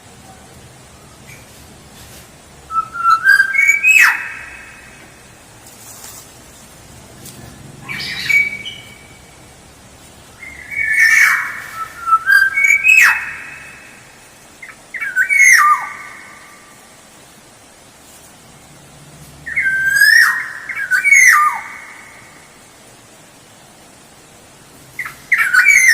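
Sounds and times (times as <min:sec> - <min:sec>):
oriole whistled song: 0:02.7 - 0:04.7, 0:10.4 - 0:13.7, 0:19.5 - 0:21.8, 0:25.0 - 0:25.9.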